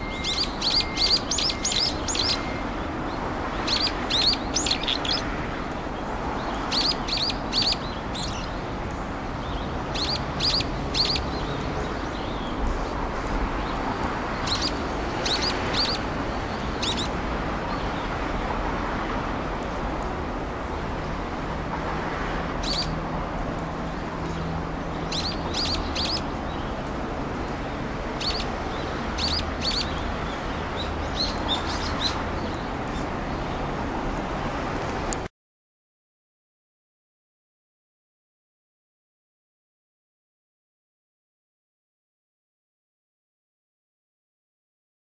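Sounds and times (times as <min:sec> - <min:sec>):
outdoor background hiss: 0:00.0 - 0:35.3.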